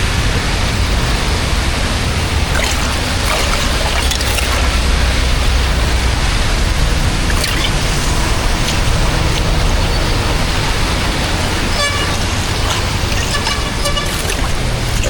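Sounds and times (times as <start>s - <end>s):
water rushing: 0.0s - 15.0s
vehicle horn beeps: 11.6s - 14.6s.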